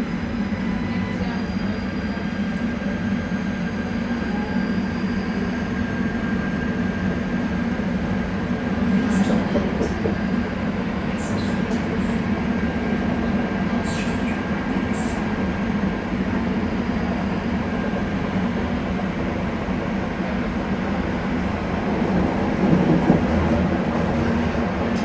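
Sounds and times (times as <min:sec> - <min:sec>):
light-rail car running rumble: 0:00.0 - 0:25.0.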